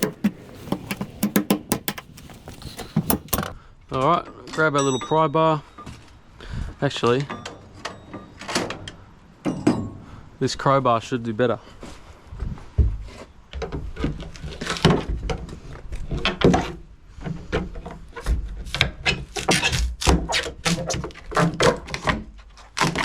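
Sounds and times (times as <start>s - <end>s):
crowbar knocking on sheet metal: 0.0s - 3.5s
crowbar scraping metal: 0.0s - 3.6s.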